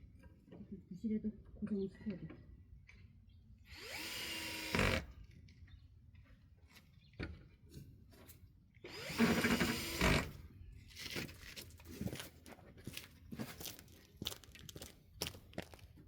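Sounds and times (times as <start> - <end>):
cordless drill driving screw: 3.7 - 5.1, 8.8 - 10.4.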